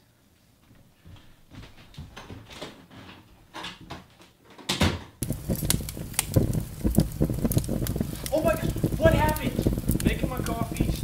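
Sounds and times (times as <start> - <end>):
fire crackling: 5.2 - 11.0
loud burst: 5.2 - 11.0.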